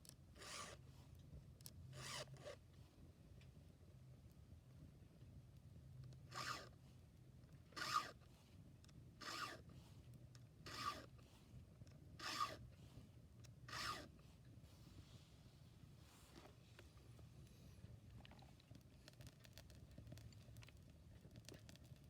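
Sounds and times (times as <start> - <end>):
file sharpening chainsaw chain: 13.7 - 14.1.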